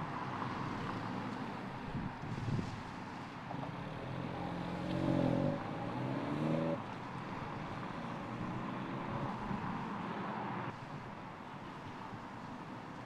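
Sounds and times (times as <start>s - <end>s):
road noise: 0.0s - 13.0s
car engine accelerating: 3.9s - 6.9s.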